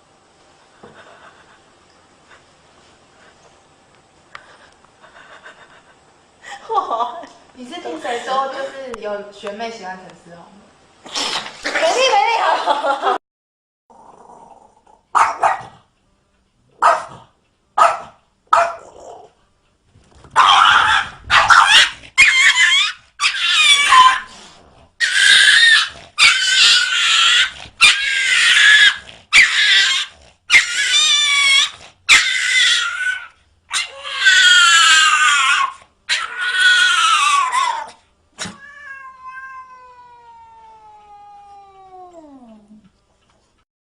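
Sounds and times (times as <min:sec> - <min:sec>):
cats yowling: 0:20.4 - 0:24.3, 0:25.0 - 0:42.8.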